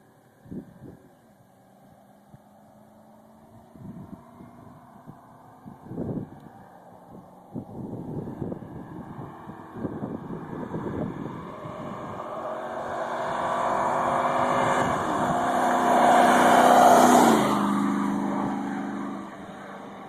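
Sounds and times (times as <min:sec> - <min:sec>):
pickup truck driving past: 0:06.8 - 0:20.0.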